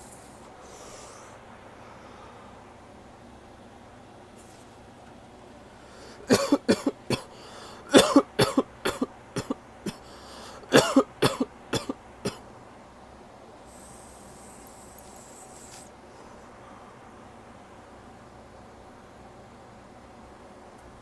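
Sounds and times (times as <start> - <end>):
man coughing: 6.2 - 12.4.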